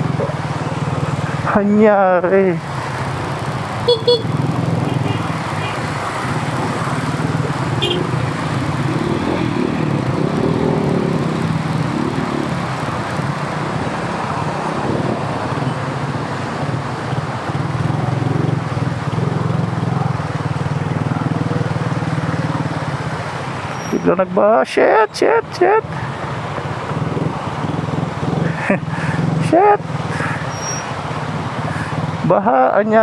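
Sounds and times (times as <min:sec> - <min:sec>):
motorcycle engine running: 0:00.0 - 0:14.2, 0:15.6 - 0:23.4
road and traffic noise: 0:00.0 - 0:33.0.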